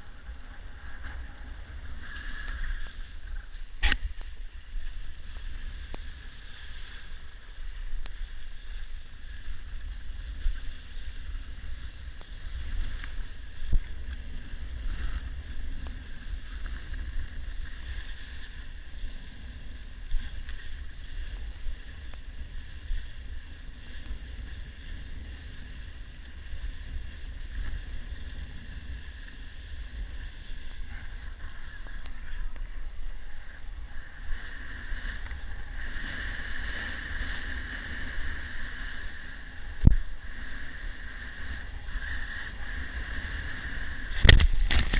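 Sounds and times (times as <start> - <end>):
waves washing: 0.0 - 44.9
wind buffeting microphone: 0.0 - 44.9.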